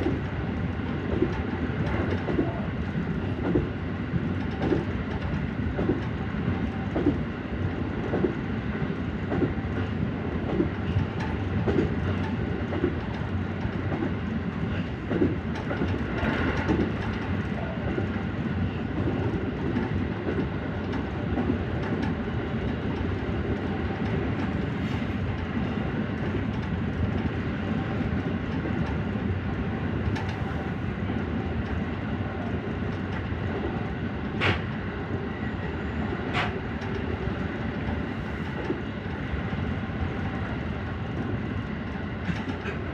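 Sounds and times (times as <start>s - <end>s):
electric train rumble: 0.0s - 42.9s.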